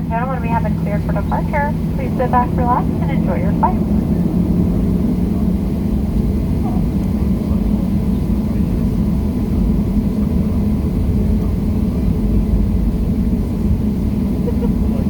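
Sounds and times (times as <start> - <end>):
jet engine rumble in cabin: 0.0 - 15.0.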